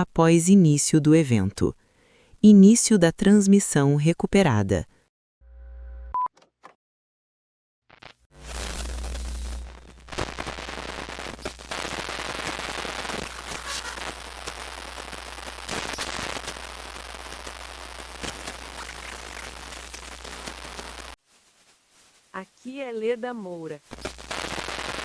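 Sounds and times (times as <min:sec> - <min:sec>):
radio static crackling hiss: 0:07.9 - 0:25.0.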